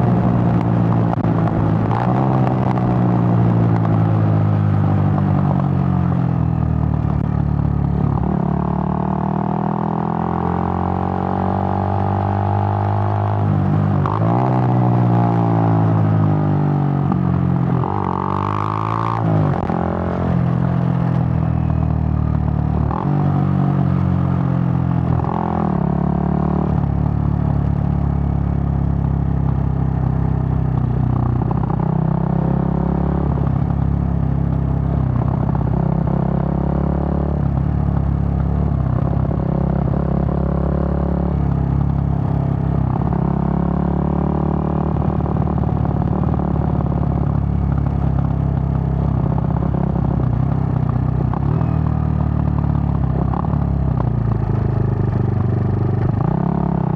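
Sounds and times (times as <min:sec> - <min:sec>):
motorcycle engine shifting gears: 0:00.0 - 0:56.9.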